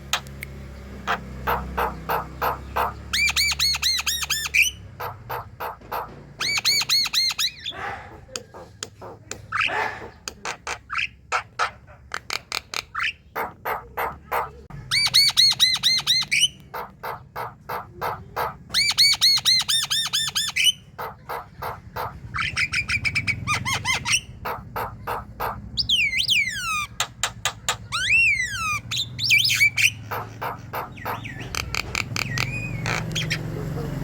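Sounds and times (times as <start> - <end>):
bird singing harsh clicks and chirps: 0.0 - 1.2, 12.1 - 13.2, 25.8 - 33.4.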